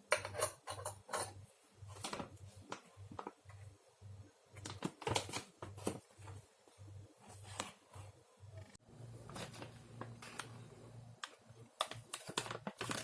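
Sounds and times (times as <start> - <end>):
small objects clicking and tapping: 0.0 - 1.4, 11.2 - 13.0
faint low hum: 0.0 - 13.0.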